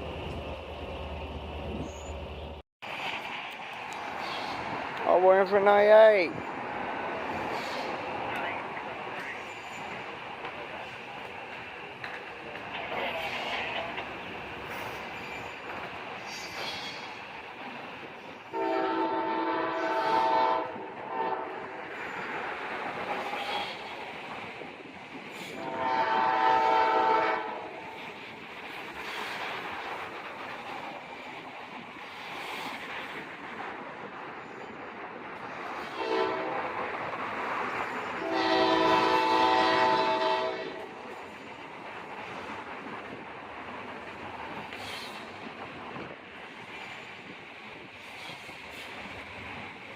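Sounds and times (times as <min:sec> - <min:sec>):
moving train noise: 0:00.0 - 0:49.9
train horn chord: 0:18.5 - 0:21.6, 0:25.6 - 0:27.8, 0:36.0 - 0:36.6, 0:38.2 - 0:40.9.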